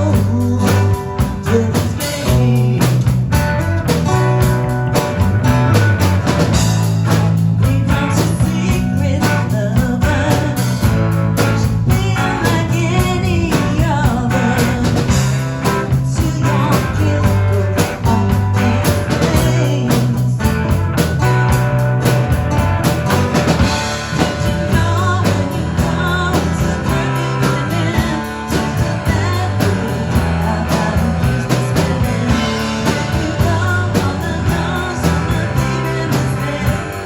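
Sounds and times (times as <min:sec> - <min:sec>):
lead singer singing: 0:00.0 - 0:03.2, 0:07.4 - 0:20.7, 0:23.6 - 0:37.0
live rock band playing: 0:00.0 - 0:37.0.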